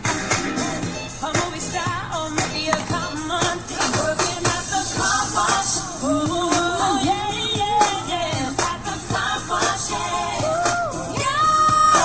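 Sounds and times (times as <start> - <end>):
pop song: 0.0 - 12.0
person singing: 0.2 - 12.0.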